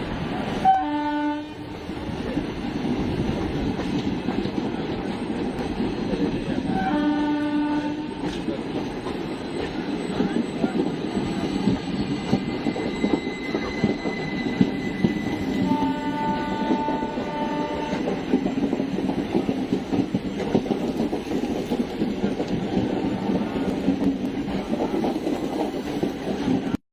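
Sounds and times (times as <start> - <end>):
train horn: 0.6 - 1.7, 6.6 - 8.3, 12.8 - 18.2
train wheels clattering on rails: 1.6 - 26.8.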